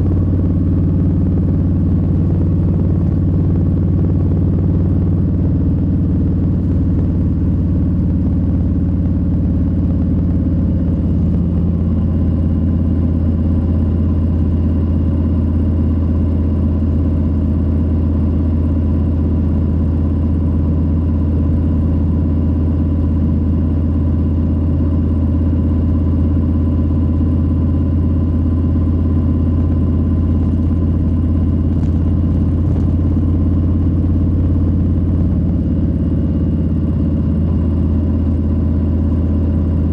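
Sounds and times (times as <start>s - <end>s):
motorcycle engine rumbling: 0.0s - 15.9s, 27.6s - 39.9s.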